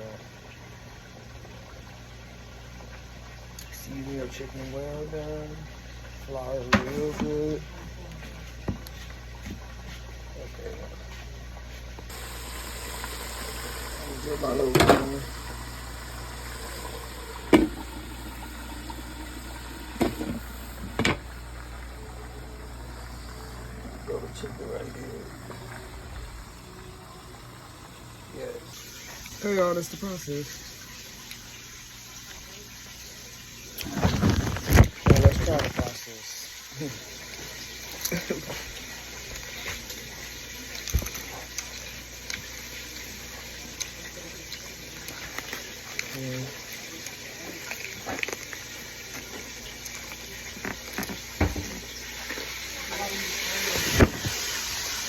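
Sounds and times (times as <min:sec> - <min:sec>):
chicken sizzling in oil: 0:12.1 - 0:55.0.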